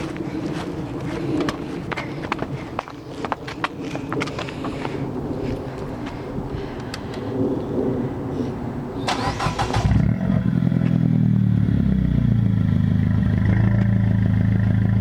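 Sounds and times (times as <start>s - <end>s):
car engine idling: 9.2s - 15.0s.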